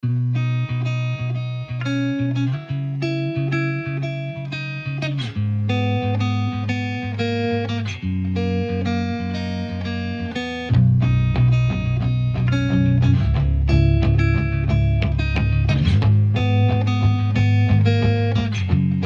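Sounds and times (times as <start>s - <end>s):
guitar picking plucked notes: 0.0s - 19.0s
bass line: 10.7s - 19.0s.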